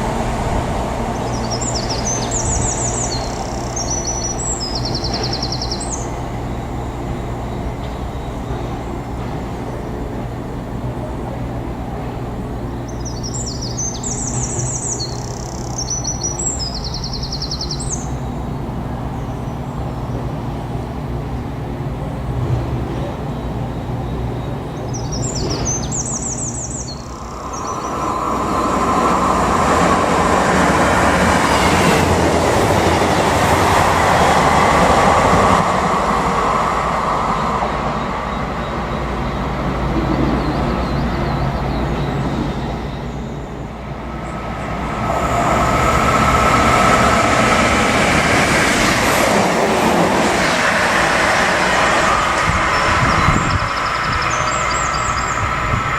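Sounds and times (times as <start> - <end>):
low train engine hum: 0.0 - 55.9
wheel-on-rail rush: 0.0 - 55.9
steady ringing tone: 25.8 - 32.0.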